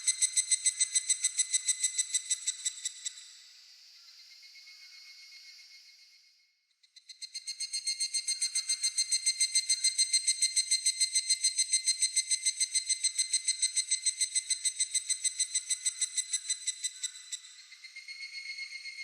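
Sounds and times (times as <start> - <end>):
cicada calling: 0.0 - 3.1.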